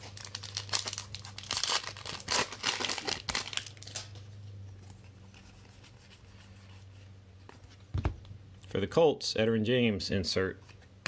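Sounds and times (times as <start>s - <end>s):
plastic wrapper tearing and crinkling: 0.0s - 4.2s.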